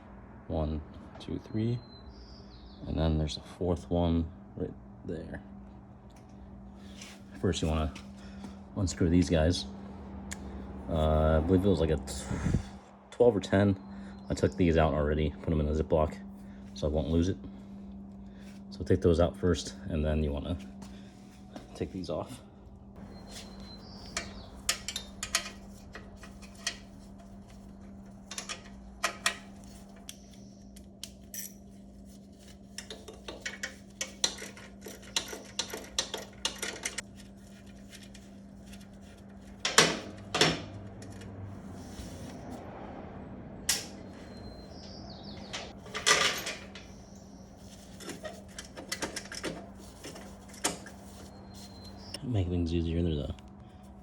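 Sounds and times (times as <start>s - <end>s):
steady low hum: 0.0s - 54.0s
metal tools clinking and knocking: 23.3s - 27.3s, 28.2s - 30.1s, 31.2s - 31.7s, 32.8s - 37.0s, 44.8s - 47.1s, 47.7s - 51.2s.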